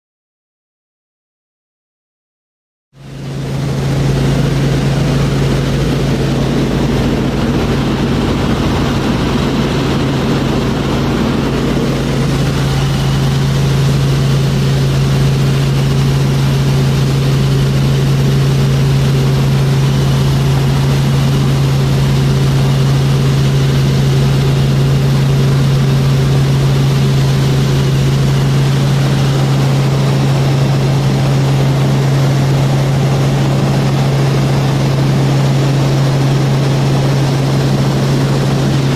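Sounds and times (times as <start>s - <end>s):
helicopter drone inside cabin: 3.0s - 38.9s
rushing noise: 3.2s - 23.6s.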